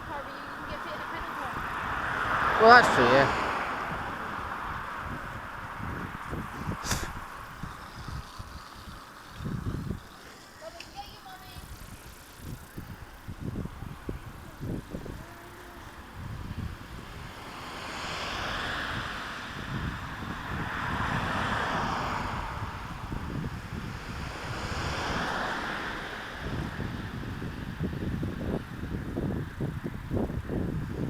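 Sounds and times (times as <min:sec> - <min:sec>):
bicycle rumbling: 0:00.0 - 0:31.0
wind buffeting microphone: 0:00.0 - 0:31.0
rushing hiss: 0:06.5 - 0:12.3.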